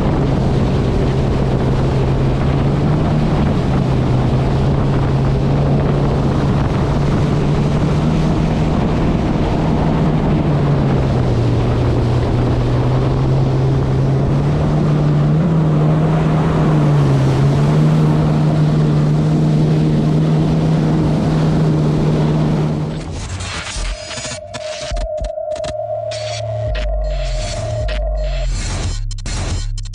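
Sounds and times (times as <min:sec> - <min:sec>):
water rushing: 0:00.0 - 0:23.2
jet ski engine running: 0:00.0 - 0:23.4
wind: 0:00.0 - 0:24.9.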